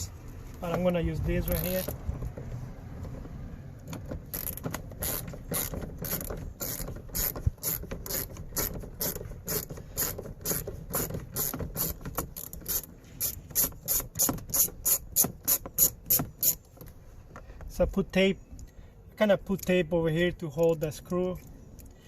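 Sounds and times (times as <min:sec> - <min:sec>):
hand ratchet clicking: 0:03.9 - 0:16.6.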